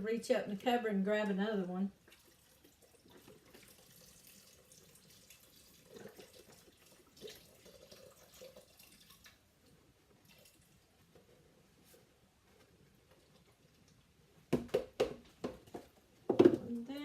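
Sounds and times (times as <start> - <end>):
broth pouring and splashing: 2.0 - 11.0.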